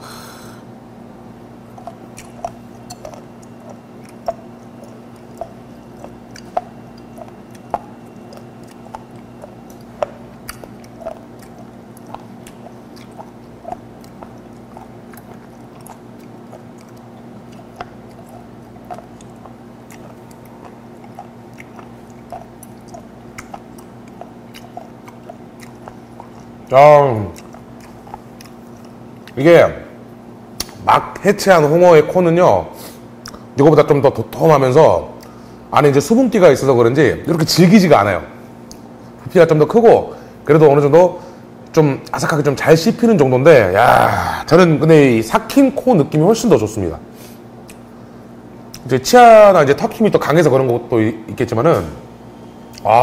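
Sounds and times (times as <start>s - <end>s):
steady low hum: 0.0s - 53.0s
chewing cartilage crunches: 1.6s - 29.4s, 33.2s - 33.6s, 47.6s - 48.9s.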